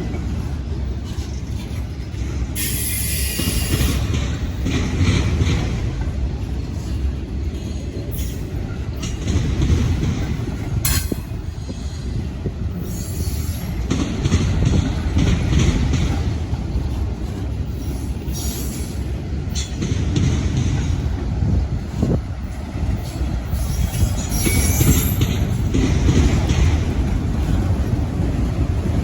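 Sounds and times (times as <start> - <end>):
railroad cars rumbling: 0.0 - 29.0
high wheel squeal: 23.5 - 25.3.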